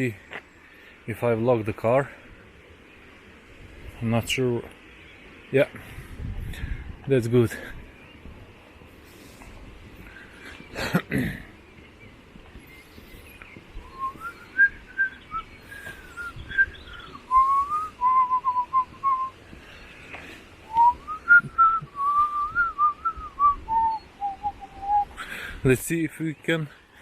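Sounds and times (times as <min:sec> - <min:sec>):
person whistling a tune: 0:13.9 - 0:16.7, 0:17.3 - 0:19.3, 0:20.7 - 0:25.2.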